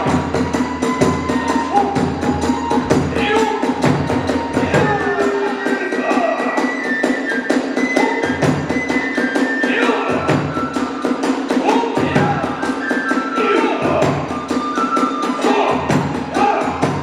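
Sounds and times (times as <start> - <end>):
deep drum swell: 0.0 - 5.6
drum beat: 0.0 - 14.8, 15.4 - 17.0
bamboo flute melody: 0.0 - 17.0
hand cymbals: 0.0 - 17.0.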